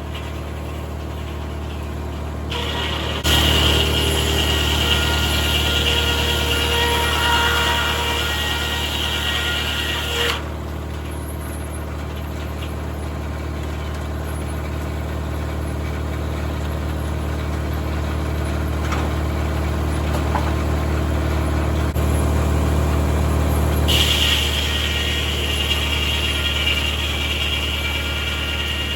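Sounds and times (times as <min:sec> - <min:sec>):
high-pitched saw whine: 0:02.5 - 0:10.5, 0:23.5 - 0:28.9
tractor engine running: 0:10.4 - 0:26.0.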